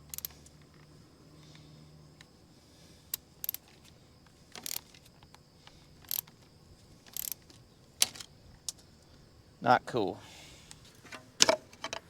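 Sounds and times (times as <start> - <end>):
wrench clicking on bolt: 0.0 - 0.4, 4.6 - 4.9, 7.1 - 7.4.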